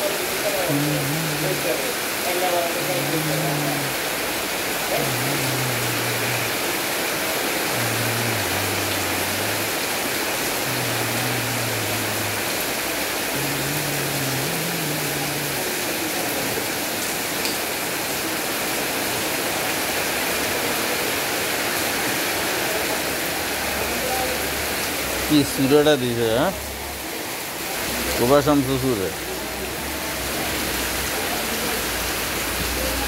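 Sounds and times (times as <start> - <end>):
heavy rain on tarpaulin: 0.0 - 33.0
water pouring off awnings: 0.0 - 33.0.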